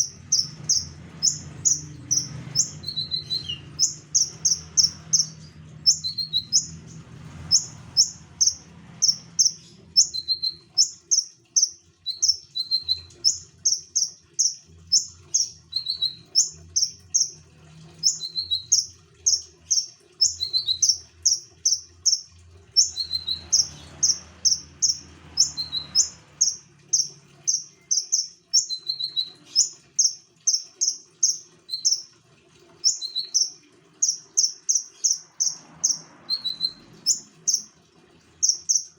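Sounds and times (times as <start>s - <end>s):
songbird singing high chirps: 0.0s - 6.8s, 7.5s - 17.4s, 22.8s - 32.0s, 32.8s - 37.7s, 38.4s - 38.9s.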